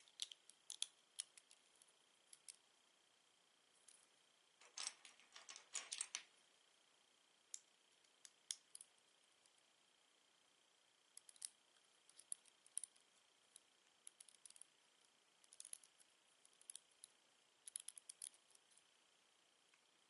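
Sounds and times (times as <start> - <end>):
plastic bricks clicking: 4.6 - 6.3.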